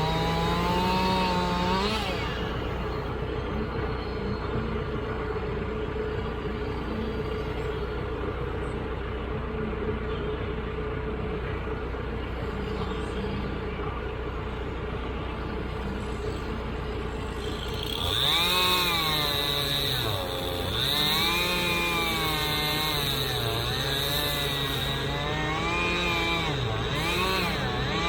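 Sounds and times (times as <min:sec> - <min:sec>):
tractor engine revving: 0:00.0 - 0:28.0.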